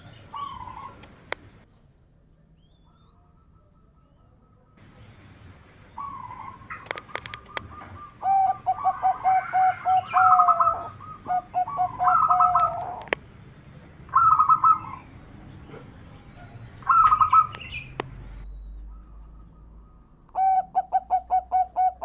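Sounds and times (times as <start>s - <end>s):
dove cooing: 0.0s - 1.3s, 5.9s - 13.2s, 14.0s - 18.0s, 18.9s - 22.0s
sharp clicks: 6.7s - 7.7s, 17.5s - 18.2s.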